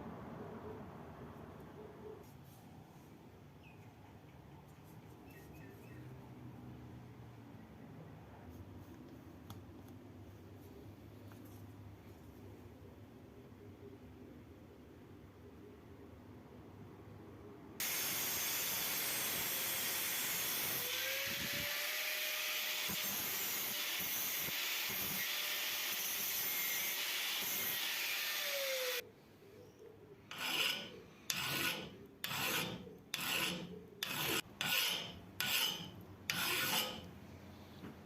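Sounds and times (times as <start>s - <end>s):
abrasive rasping on a blade: 30.3s - 37.1s.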